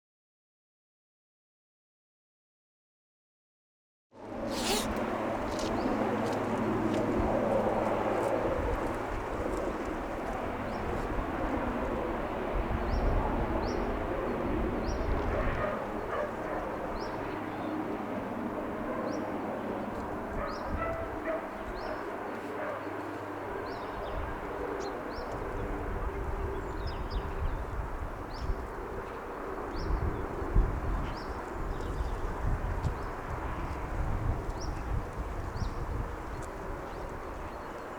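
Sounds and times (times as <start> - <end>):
distant traffic hum: 4.2 - 37.9
dogs barking: 15.3 - 16.8, 20.4 - 23.0.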